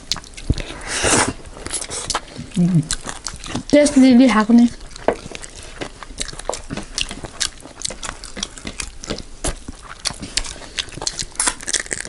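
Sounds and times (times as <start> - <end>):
wet chewing and lip-smacking: 0.0 - 12.0.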